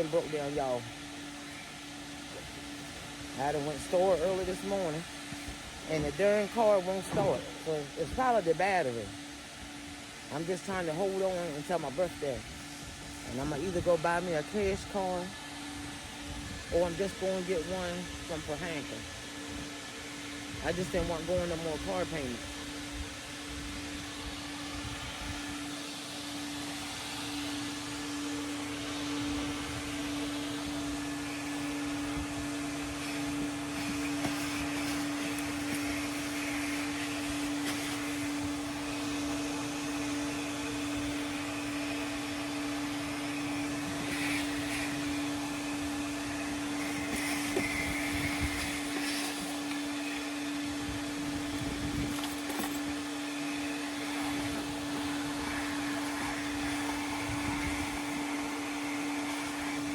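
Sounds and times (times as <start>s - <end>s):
rushing hiss of suction: 0.0s - 59.9s
vacuum motor hum: 0.0s - 59.9s.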